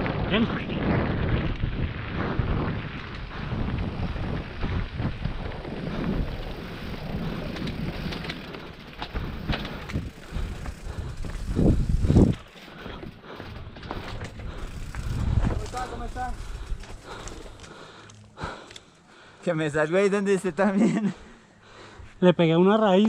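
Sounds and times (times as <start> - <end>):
wind on microphone: 0.0 - 8.5, 9.1 - 12.5, 13.9 - 17.2
bike rattling over rough trail: 0.0 - 18.7.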